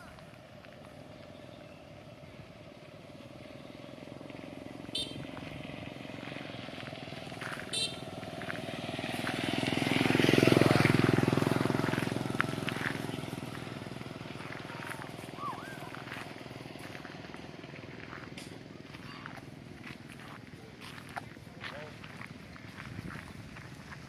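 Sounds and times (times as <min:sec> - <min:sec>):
vehicle engine passing: 0:00.0 - 0:24.0.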